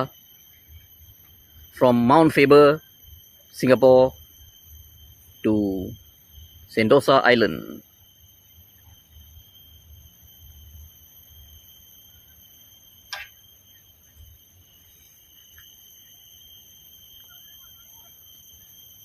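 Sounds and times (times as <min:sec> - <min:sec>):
steady high-pitched whine: 0:00.0 - 0:19.0.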